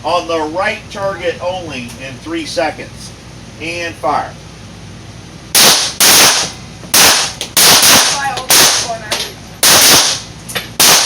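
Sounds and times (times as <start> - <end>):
pistol gunshots: 5.6 - 8.9, 9.6 - 11.0.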